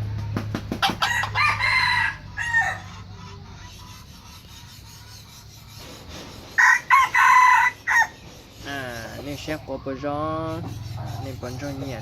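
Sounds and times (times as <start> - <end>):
rooster crowing: 0.8 - 3.0, 6.6 - 8.2.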